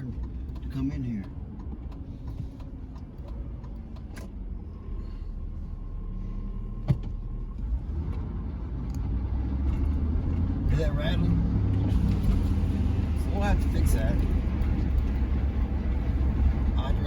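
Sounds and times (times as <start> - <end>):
exhaust clicks: 0.0 - 5.0
truck engine and road noise: 0.0 - 17.0.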